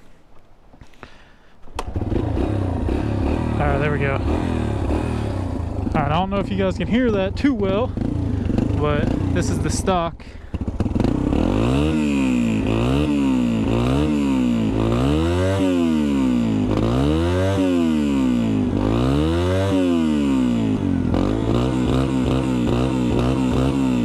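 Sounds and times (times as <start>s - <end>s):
engine idling: 1.8s - 12.8s
motorcycle engine revving: 1.8s - 24.0s.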